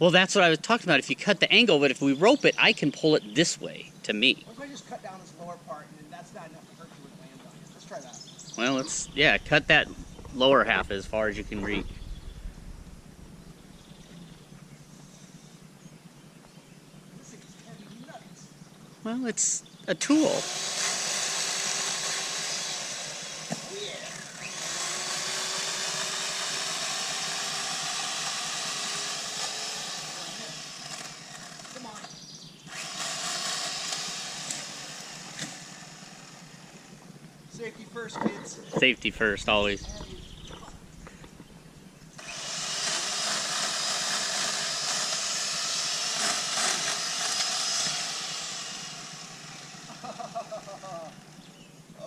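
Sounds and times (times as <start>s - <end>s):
electric chainsaw cutting branch: 20.1s - 37.3s, 39.5s - 51.6s.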